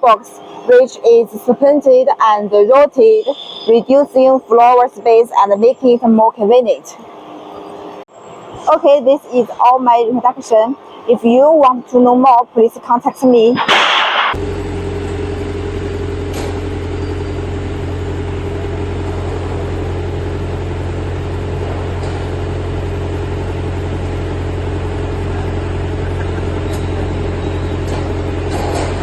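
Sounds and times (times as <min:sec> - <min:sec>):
diesel generator engine running: 0:14.4 - 0:29.0.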